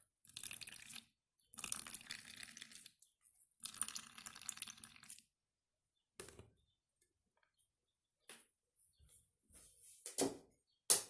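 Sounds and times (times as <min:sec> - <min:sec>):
juice trickling and splashing: 0:00.2 - 0:05.4.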